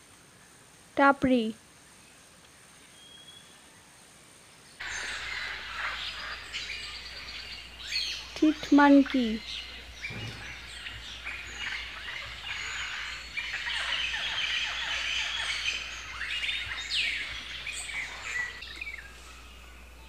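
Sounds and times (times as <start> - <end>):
birds chirping: 4.5 - 20.0.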